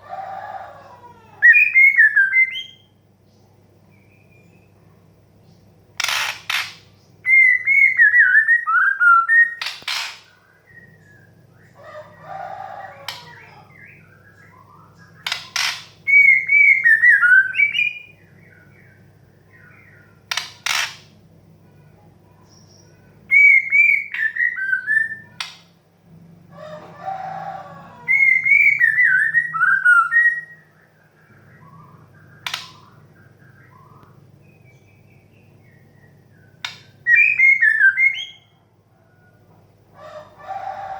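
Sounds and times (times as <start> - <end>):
sharp bird clicks: 6.0 - 6.9, 20.3 - 21.1, 32.4 - 33.0.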